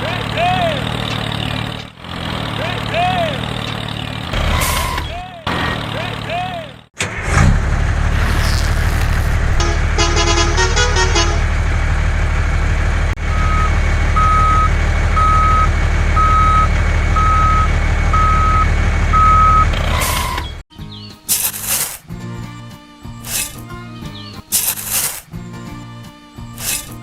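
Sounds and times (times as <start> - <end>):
truck engine rumbling: 0.0 - 27.0
horn notes: 8.1 - 11.6
reversing alarm beeping: 13.3 - 20.4.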